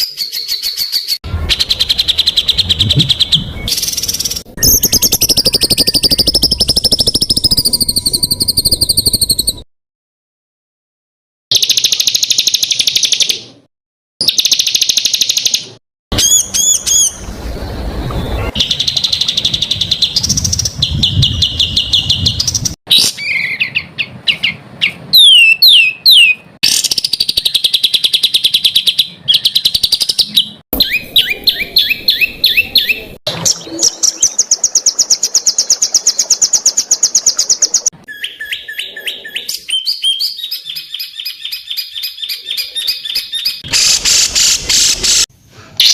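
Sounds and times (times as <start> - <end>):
small songbirds singing: 0.0 - 9.5
rapid high-pitched bird trills: 0.0 - 9.6.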